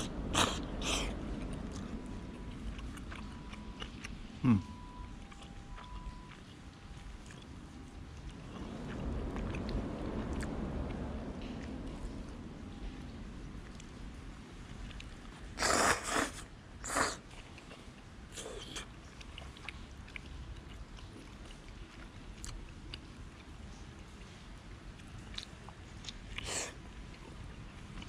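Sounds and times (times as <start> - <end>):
person slurping noodles: 0.0 - 1.2, 15.6 - 17.2
quiet chewing: 0.0 - 12.2, 14.8 - 28.0.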